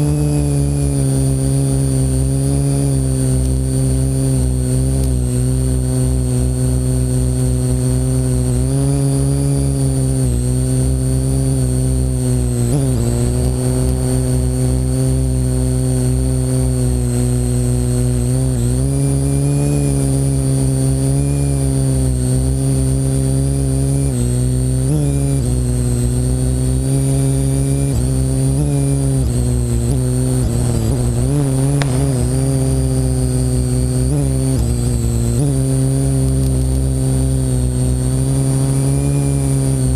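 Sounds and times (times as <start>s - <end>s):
wind rumble on microphone: 0.0s - 20.4s, 28.0s - 36.1s
drone propellers buzzing: 0.0s - 39.9s
high whine: 0.0s - 39.9s.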